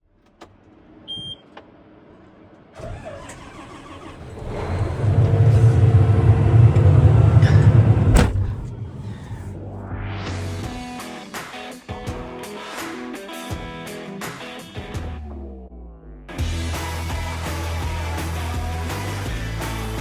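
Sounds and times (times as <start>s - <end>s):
short beep: 1.1s - 1.4s
engine cranking and running: 2.8s - 9.5s.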